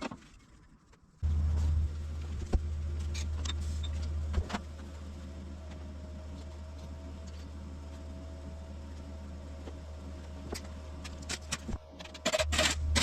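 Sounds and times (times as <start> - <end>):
steady low hum: 1.2 - 13.0.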